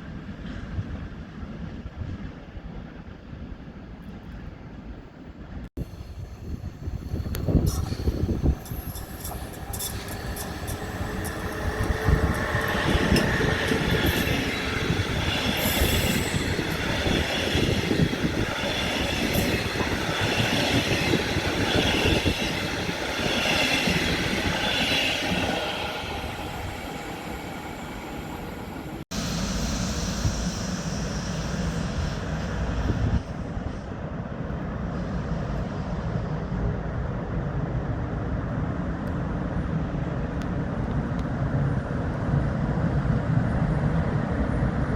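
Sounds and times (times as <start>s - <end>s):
train clatter and rumble: 0.0s - 44.9s
train wheel squeal: 5.8s - 33.9s.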